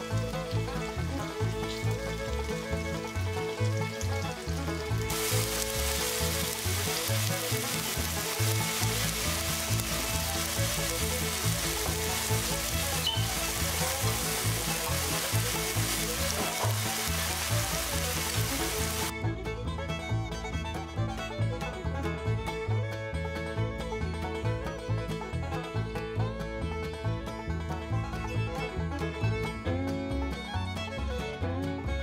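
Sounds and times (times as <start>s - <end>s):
tofu sizzling in frying pan: 0.0s - 19.1s.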